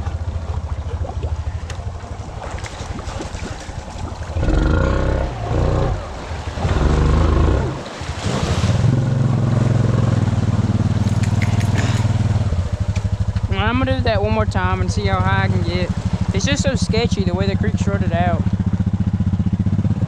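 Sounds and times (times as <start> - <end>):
water splashing: 0.0 - 20.0
atv engine revving: 4.2 - 20.0.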